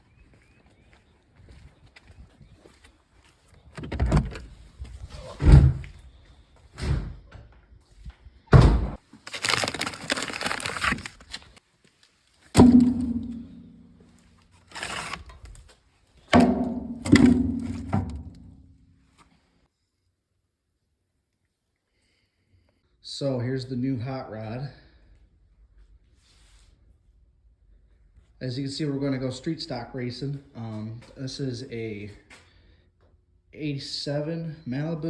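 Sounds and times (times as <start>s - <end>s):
heavy metallic thunks and bangs: 8.5s - 9.0s, 12.6s - 14.0s, 16.4s - 18.6s.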